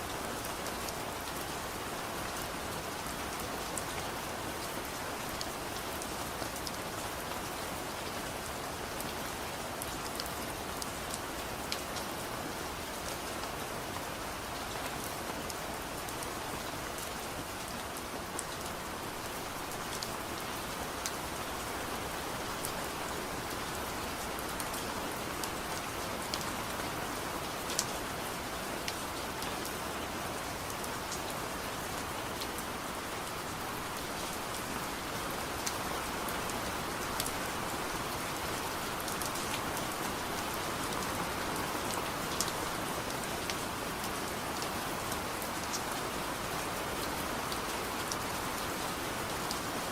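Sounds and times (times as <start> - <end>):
sharp ticks of raindrops: 0.0 - 49.9
soft steady rain: 0.0 - 49.9.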